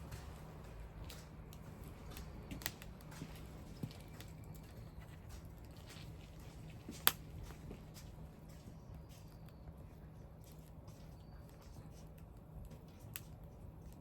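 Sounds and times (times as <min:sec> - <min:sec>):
wood fire crackling and popping: 0:00.0 - 0:08.4.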